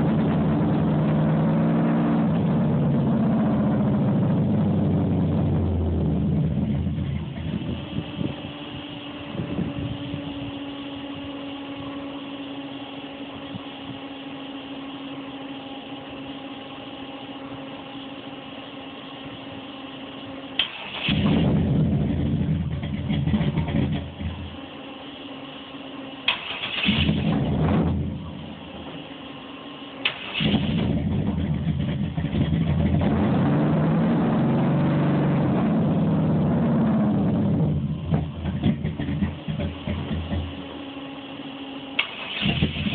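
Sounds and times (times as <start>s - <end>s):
car engine idling: 0.0s - 42.9s.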